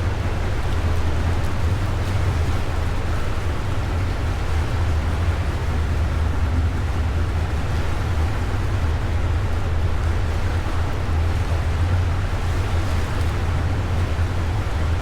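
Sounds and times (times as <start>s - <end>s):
boat engine drone: 0.0s - 15.0s
wind: 0.0s - 15.0s.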